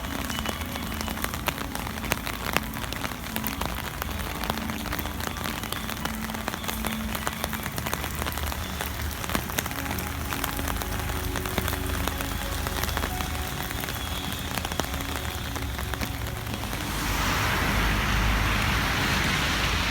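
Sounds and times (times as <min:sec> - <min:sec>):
rain drops ticking: 0:00.0 - 0:19.9
rain hiss: 0:00.0 - 0:19.9
low rumble: 0:15.0 - 0:19.9.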